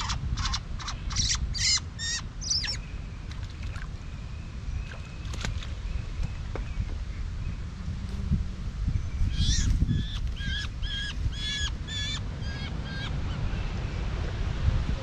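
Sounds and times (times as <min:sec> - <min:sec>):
bird calling: 0:00.0 - 0:03.0, 0:09.1 - 0:13.9
wind rumble on microphone: 0:00.0 - 0:15.0.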